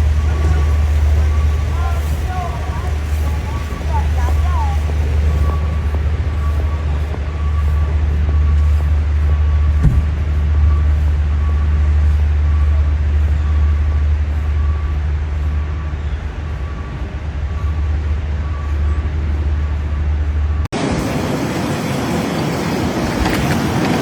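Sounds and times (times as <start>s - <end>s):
loud low rumble: 0.0s - 22.4s.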